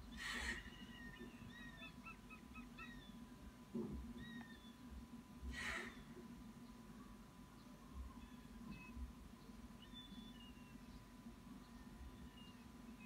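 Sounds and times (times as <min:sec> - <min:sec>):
harsh hissing bird call: 0:00.0 - 0:03.0, 0:05.5 - 0:06.2
steady hum: 0:00.0 - 0:13.0.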